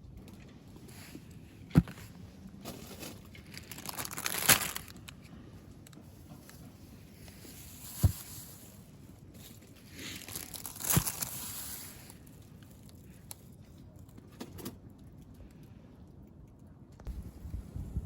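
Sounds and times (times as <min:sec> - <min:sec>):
gear rustling and crinkling: 0:00.1 - 0:14.2.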